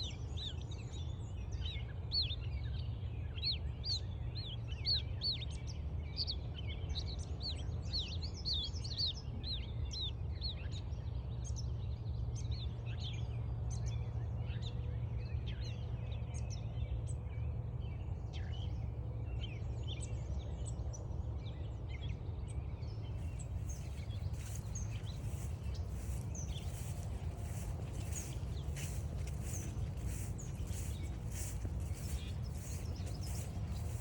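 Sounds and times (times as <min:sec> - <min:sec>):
steady low rumble: 0:23.0 - 0:34.0
birds chirping and trilling: 0:23.2 - 0:34.0
faint scuffs: 0:23.2 - 0:34.0.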